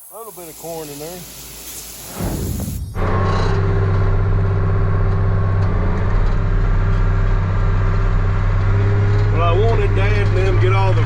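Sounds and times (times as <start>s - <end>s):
farm vehicle engine droning: 3.0s - 11.0s.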